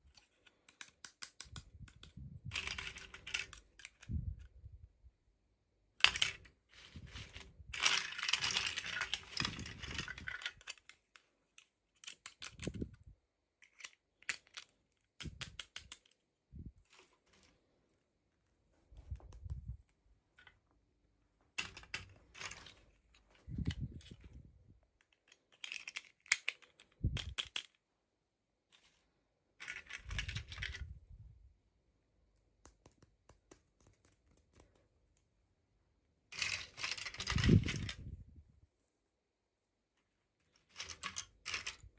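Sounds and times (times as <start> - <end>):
plastic clicks and taps: 0.6 - 4.2, 19.0 - 19.8, 32.6 - 35.3.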